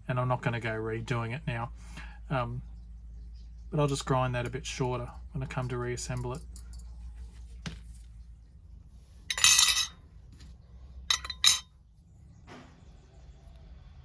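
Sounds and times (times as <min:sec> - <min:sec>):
sharp metal clinks: 0:09.3 - 0:09.9, 0:11.1 - 0:11.6
metal tools rattling: 0:09.3 - 0:10.0, 0:11.1 - 0:11.7.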